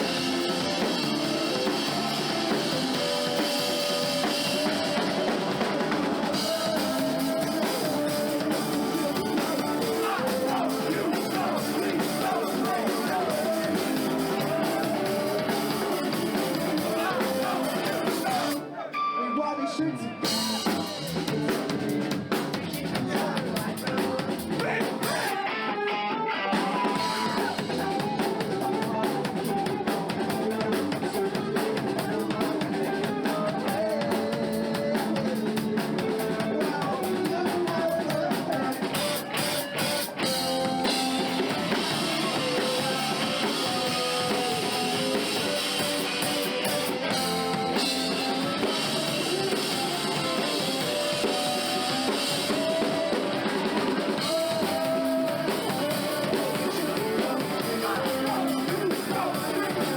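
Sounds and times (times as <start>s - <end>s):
drum kit: 0.0s - 18.6s, 20.2s - 25.8s, 26.4s - 59.9s
electric guitar: 0.0s - 59.9s.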